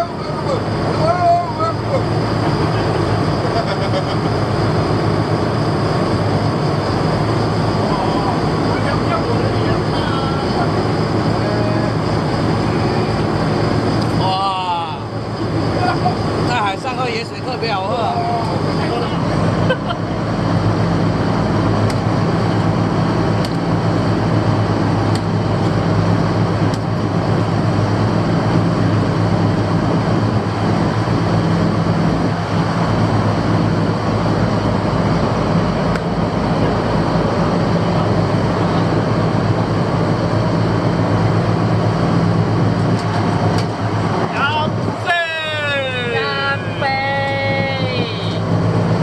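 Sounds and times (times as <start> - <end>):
boat engine droning: 0.0 - 49.0.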